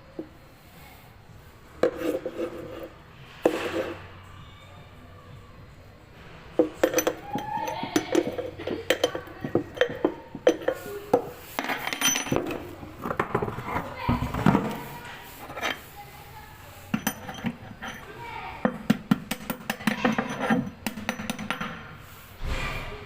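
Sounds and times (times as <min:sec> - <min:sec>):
hand tools clinking on metal: 0:06.6 - 0:16.0, 0:16.8 - 0:21.9.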